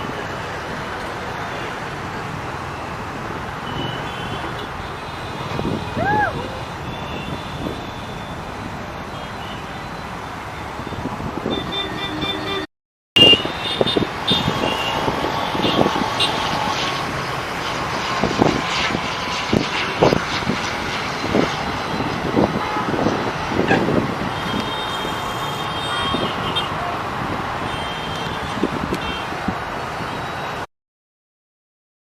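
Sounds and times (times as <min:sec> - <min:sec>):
road traffic: 0:00.0 - 0:30.7
vehicle horns tooting: 0:03.6 - 0:06.1, 0:06.8 - 0:08.4, 0:11.0 - 0:16.8, 0:22.6 - 0:23.1, 0:24.3 - 0:26.9, 0:27.6 - 0:29.3.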